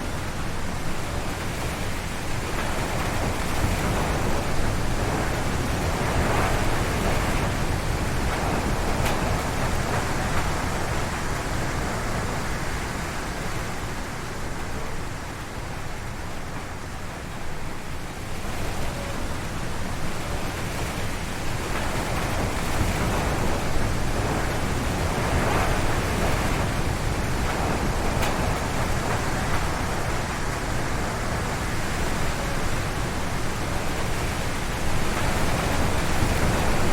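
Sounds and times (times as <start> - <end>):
wind howling through trees: 0.0 - 36.9.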